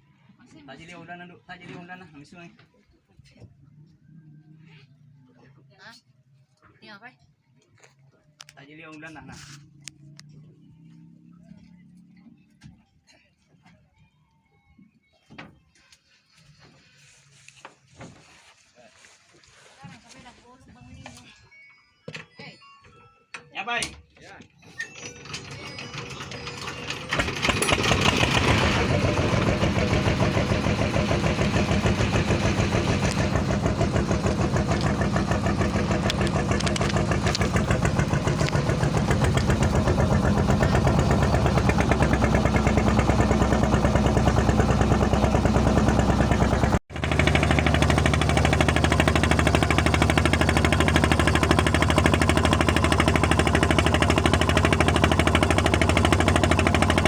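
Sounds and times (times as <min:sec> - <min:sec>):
engine running loudly: 0:26.1 - 0:57.0.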